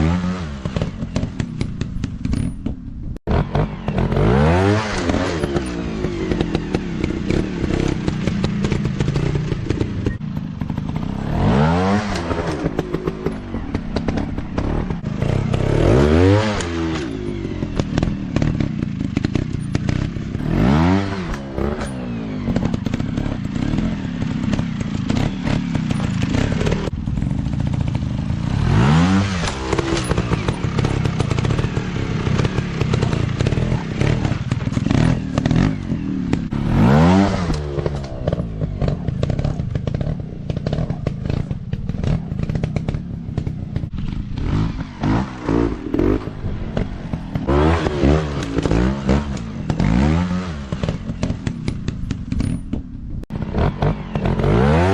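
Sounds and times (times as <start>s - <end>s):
dirt bike engine revving: 0.0s - 2.6s, 3.2s - 54.9s
clattering and thuds: 0.6s - 4.1s, 37.4s - 54.4s.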